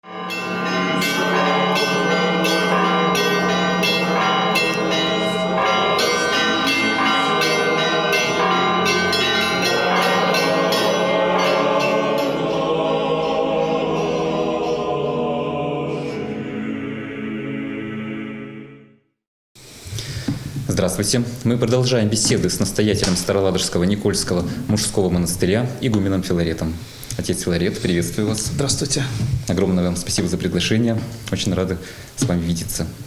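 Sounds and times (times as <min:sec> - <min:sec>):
church bells ringing: 0:00.0 - 0:15.3.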